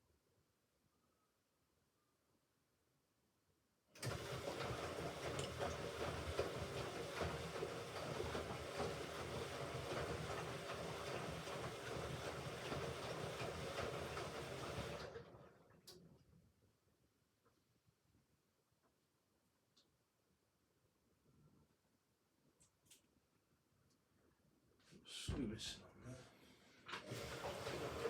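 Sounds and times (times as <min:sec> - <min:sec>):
washing machine spinning: 0:04.0 - 0:15.7, 0:27.0 - 0:28.0.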